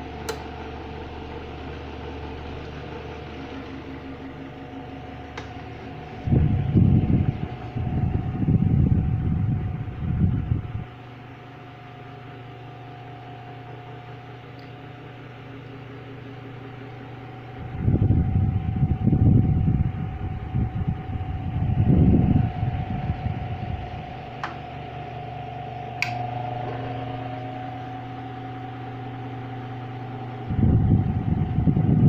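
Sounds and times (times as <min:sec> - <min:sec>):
electric fan humming and whining: 0:00.0 - 0:32.0
wind noise on microphone: 0:06.2 - 0:10.9, 0:17.6 - 0:24.4, 0:30.4 - 0:32.0.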